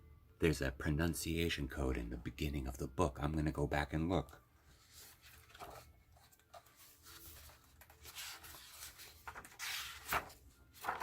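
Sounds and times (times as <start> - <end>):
paper pages turning: 4.7 - 11.0.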